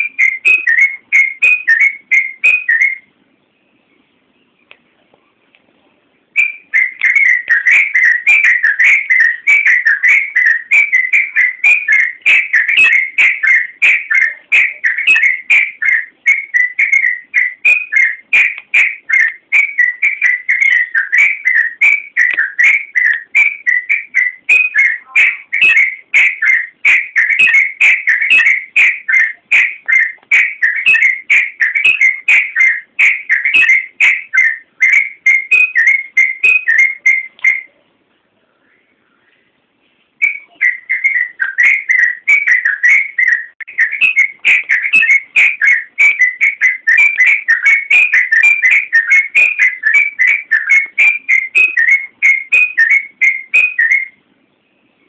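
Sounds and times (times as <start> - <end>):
bulbul singing: 0.0 - 4.8, 6.3 - 37.9, 40.2 - 55.0.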